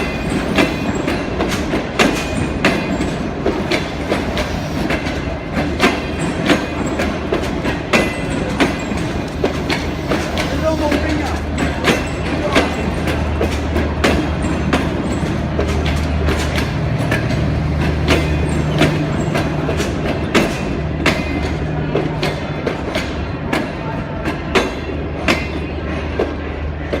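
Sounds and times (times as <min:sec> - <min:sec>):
train low drone: 0:00.0 - 0:27.0
train wheels clacking over rail joints: 0:00.0 - 0:27.0.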